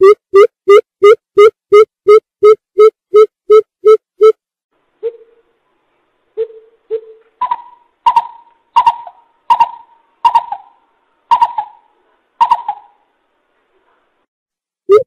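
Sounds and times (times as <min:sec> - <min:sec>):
coucal hooting calls: 0:06.4 - 0:13.0.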